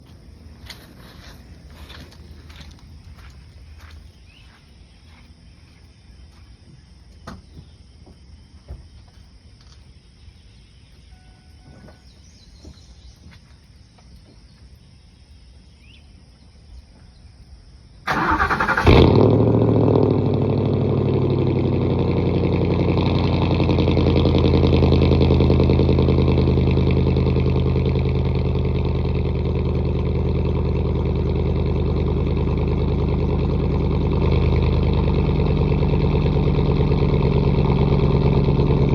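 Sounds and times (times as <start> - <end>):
starter cranking: 18.1 - 19.1
engine starting and idling: 18.1 - 38.9.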